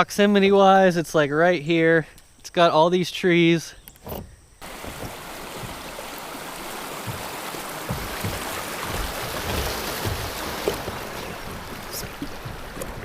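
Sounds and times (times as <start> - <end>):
faint low thuds: 4.1 - 13.0
river current rushing: 4.6 - 13.0.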